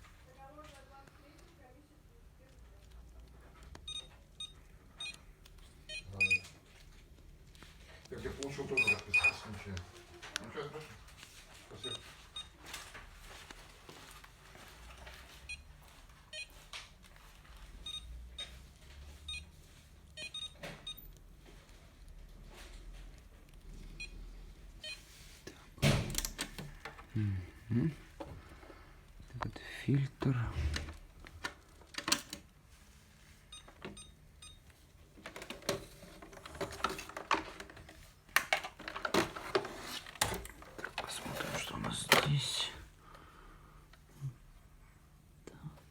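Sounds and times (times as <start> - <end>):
plastic clicks and rattles: 35.2 - 41.2.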